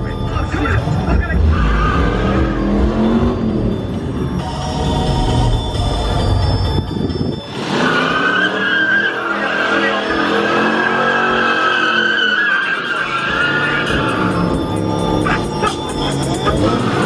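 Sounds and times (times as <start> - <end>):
car engine revving: 0.0 - 17.0
tyre squeal: 1.4 - 2.8, 7.6 - 17.0.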